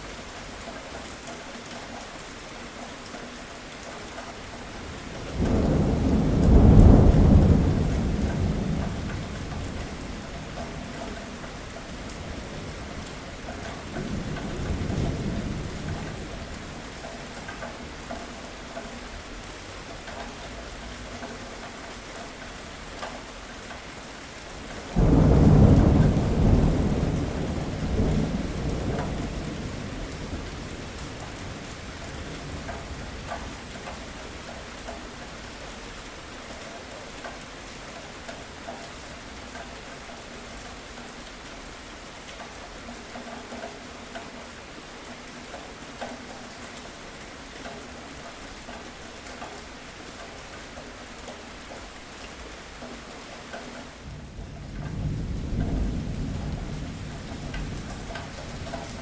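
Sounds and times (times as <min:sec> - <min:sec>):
steady rain falling: 0:00.0 - 0:59.0
thunder clap and rumble: 0:05.0 - 0:16.8, 0:24.8 - 0:34.5, 0:54.0 - 0:59.0.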